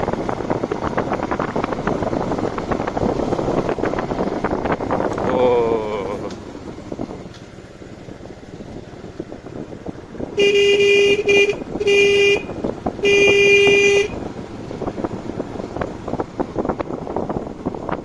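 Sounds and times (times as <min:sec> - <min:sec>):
road noise: 0:00.0 - 0:18.0
wind noise: 0:00.0 - 0:18.0
vehicle horn honking: 0:10.4 - 0:14.2.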